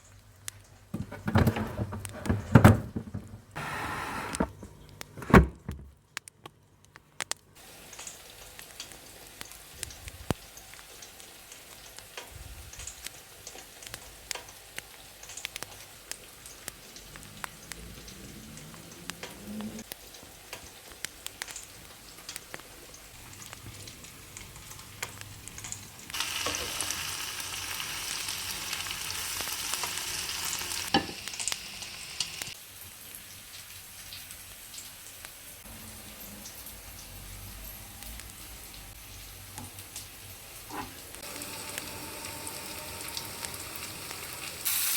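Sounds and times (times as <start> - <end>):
loud hiss: 3.6 - 4.5, 41.2 - 44.9
food sizzling in a pan: 7.6 - 18.8, 19.4 - 44.9.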